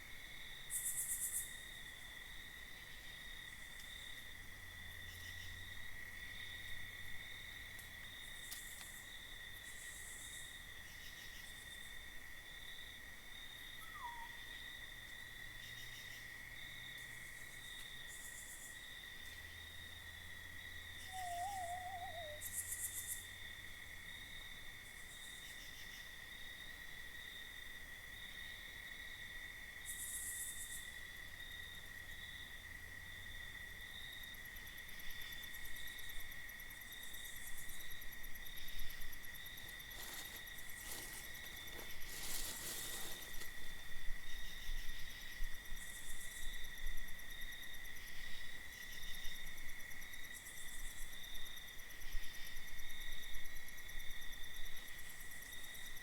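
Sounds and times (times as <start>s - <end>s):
insects trilling: 12.8s - 27.3s, 29.1s - 56.0s
faint crackling rustle: 39.6s - 43.9s.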